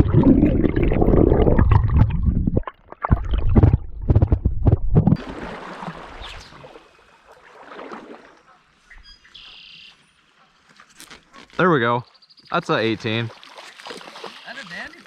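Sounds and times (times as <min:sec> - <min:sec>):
rumbling knocks on microphone: 0:03.2 - 0:05.2
stream water hissing: 0:05.3 - 0:08.3.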